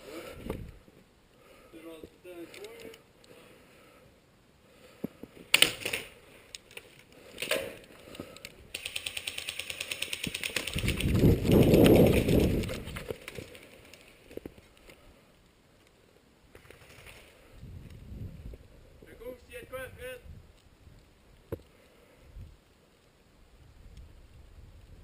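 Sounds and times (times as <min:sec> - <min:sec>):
wind rumble on microphone: 0:00.4 - 0:00.8, 0:10.6 - 0:13.2, 0:17.5 - 0:19.2, 0:19.9 - 0:21.1, 0:23.4 - 0:25.0.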